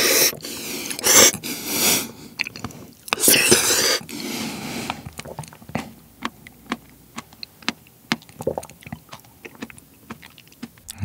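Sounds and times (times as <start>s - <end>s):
wet mouth smacks chewing: 2.4s - 4.1s, 5.2s - 11.0s.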